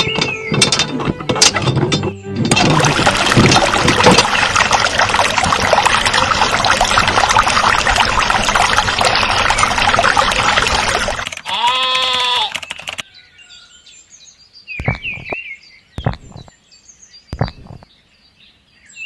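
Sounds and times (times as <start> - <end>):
water pouring and trickling: 0.0 - 11.5.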